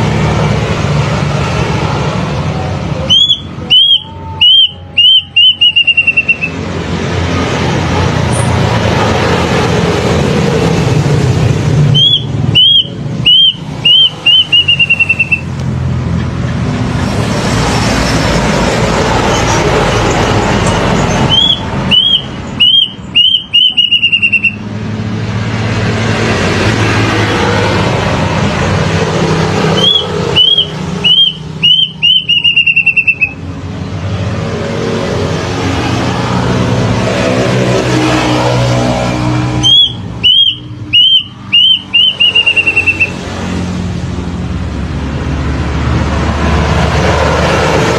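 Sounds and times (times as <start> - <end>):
cuckoo singing whistled notes: 3.0 - 6.6, 11.9 - 15.5, 21.2 - 24.6, 29.8 - 33.4, 39.6 - 43.2.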